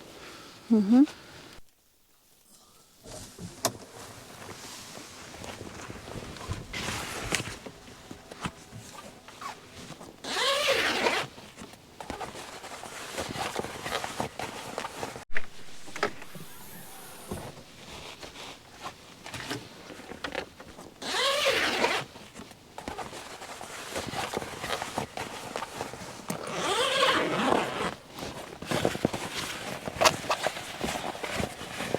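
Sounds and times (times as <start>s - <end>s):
zipper rasp: 10.2s - 11.3s, 15.4s - 18.4s, 21.0s - 22.0s, 26.5s - 28.0s
footsteps: 15.3s - 19.5s.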